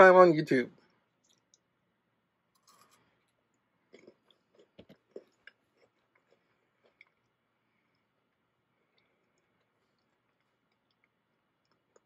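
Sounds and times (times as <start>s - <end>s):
person chewing crunchy wafers: 2.6s - 12.0s.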